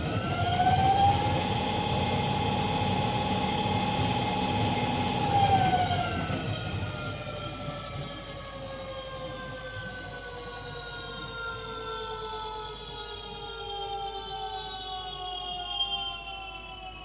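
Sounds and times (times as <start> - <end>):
electric motor whine: 0.0 - 7.7.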